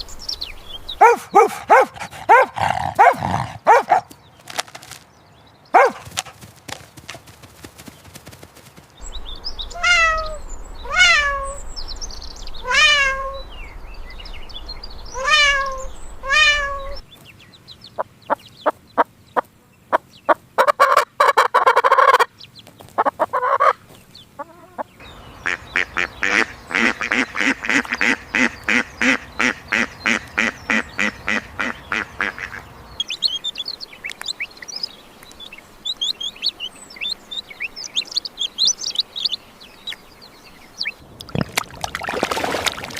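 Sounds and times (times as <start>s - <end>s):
honking bird calls: 0.7s - 5.0s, 5.8s - 6.4s, 9.5s - 11.8s, 12.6s - 13.7s, 15.1s - 17.1s, 22.9s - 41.5s.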